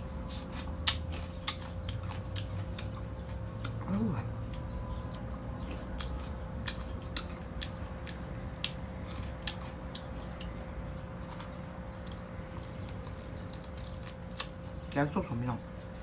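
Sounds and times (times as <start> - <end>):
person chewing crunchy fruit: 0.0 - 16.0
steady low hum: 0.0 - 16.0.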